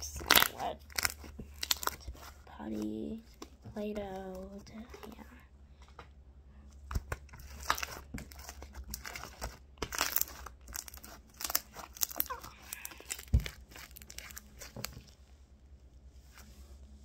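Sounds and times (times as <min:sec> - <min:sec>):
slime squished by hand: 0:00.0 - 0:02.4, 0:06.9 - 0:15.2.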